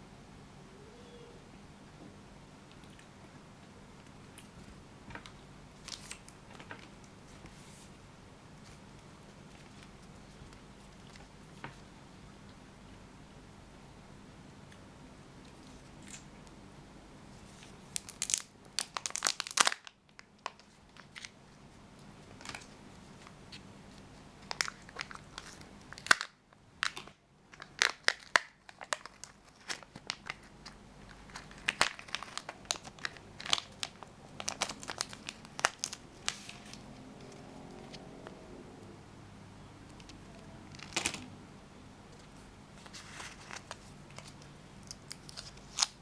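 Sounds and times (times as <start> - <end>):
wrapper crinkling and tearing: 5.8 - 6.9, 17.9 - 21.4, 24.4 - 37.5, 40.0 - 41.3, 42.8 - 46.0.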